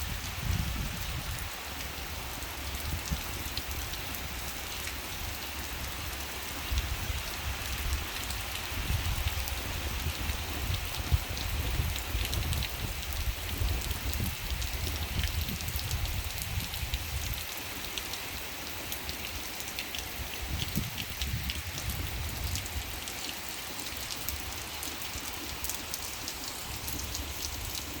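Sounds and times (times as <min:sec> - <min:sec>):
raindrops ticking on a surface: 0:00.1 - 0:28.0.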